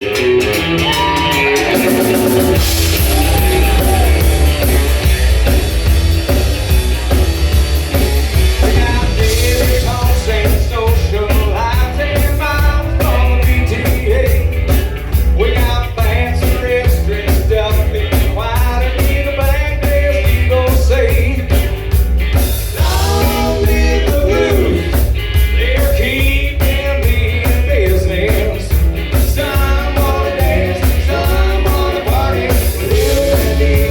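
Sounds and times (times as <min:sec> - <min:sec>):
rock band playing: 0:00.0 - 0:33.9
lead singer singing: 0:08.6 - 0:14.6, 0:22.7 - 0:33.9.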